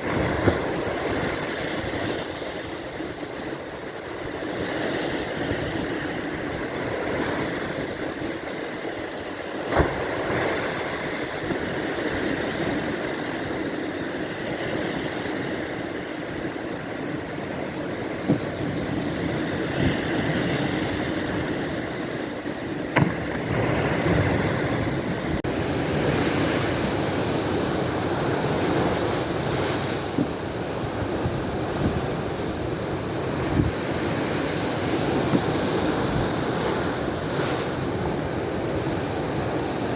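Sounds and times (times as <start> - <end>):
waves washing onto shore: 0.0 - 39.9
wind buffeting microphone: 14.6 - 39.9
sharp knocks: 22.9 - 23.5.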